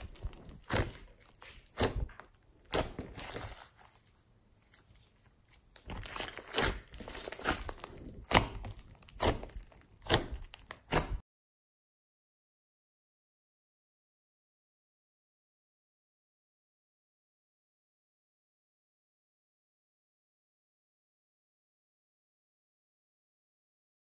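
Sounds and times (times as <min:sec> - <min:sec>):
slime squishing: 0:00.0 - 0:11.2.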